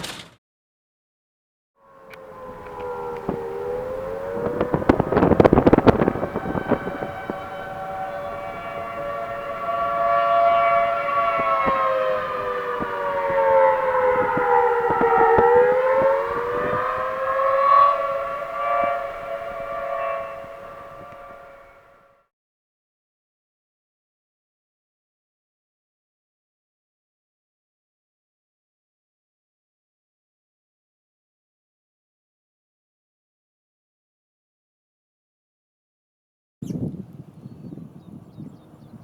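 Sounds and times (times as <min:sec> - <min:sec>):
tornado warning siren: 0:01.8 - 0:22.3, 0:37.0 - 0:39.0
sharp crackling knocks: 0:11.2 - 0:17.2.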